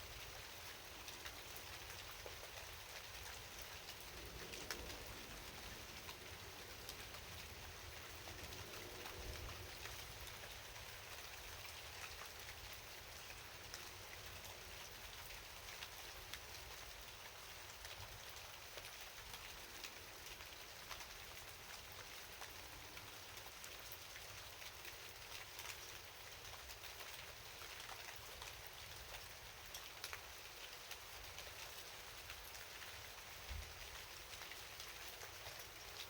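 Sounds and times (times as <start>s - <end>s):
steady rain hiss: 0.0s - 36.0s
raindrop ticks: 1.0s - 12.5s, 15.2s - 16.9s, 22.3s - 36.0s.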